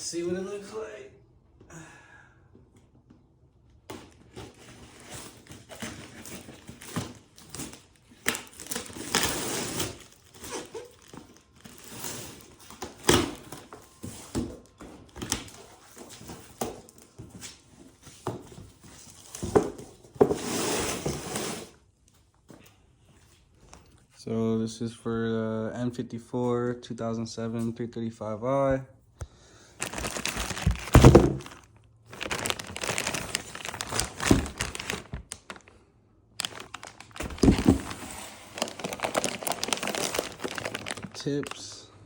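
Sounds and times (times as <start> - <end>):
packaging crinkling and tearing: 3.9 - 17.1, 29.8 - 35.8, 36.4 - 41.8.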